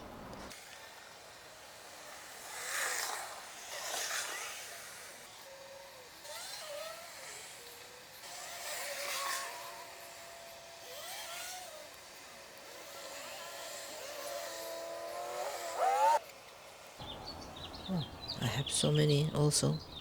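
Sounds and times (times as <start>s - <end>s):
faint chirping bird calls: 17.0s - 20.0s.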